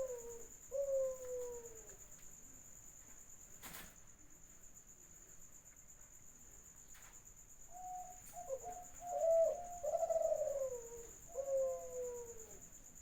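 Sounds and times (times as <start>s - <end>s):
dove cooing: 0.0s - 2.0s, 7.8s - 12.6s.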